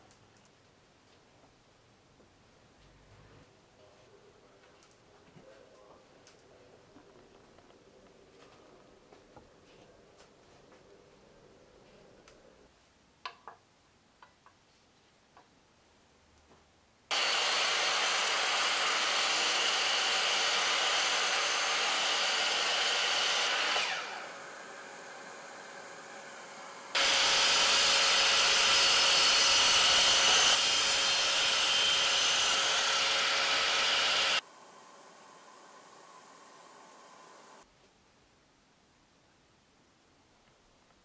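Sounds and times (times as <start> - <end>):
miter saw cutting wood: 17.1 - 37.6.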